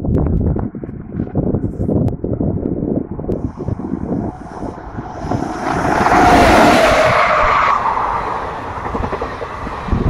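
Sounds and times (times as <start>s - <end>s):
electric locomotive passing: 3.4s - 10.0s
coaches rumbling over track: 3.5s - 10.0s.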